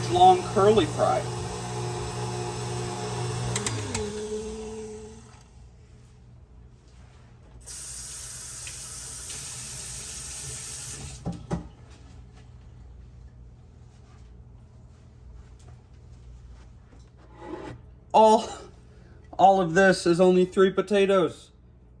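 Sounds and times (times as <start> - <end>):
stand mixer motor winding down: 0.0 - 5.6.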